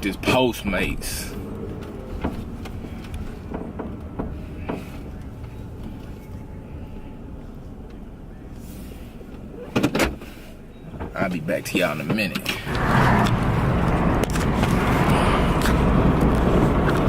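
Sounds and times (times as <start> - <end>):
engine and road rumble: 0.0 - 17.0.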